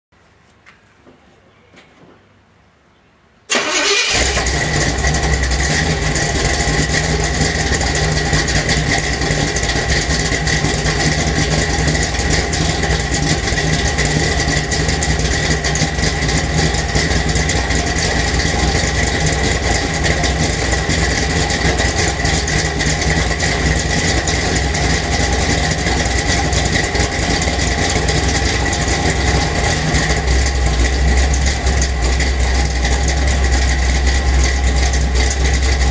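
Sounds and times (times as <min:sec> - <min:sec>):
car engine starting: 0:03.5 - 0:35.9
loud rough engine idle: 0:03.5 - 0:35.9.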